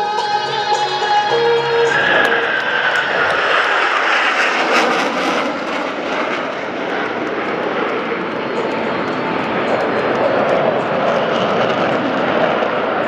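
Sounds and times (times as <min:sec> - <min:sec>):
music: 0:00.0 - 0:03.6
jet aircraft roar passing: 0:01.0 - 0:13.0.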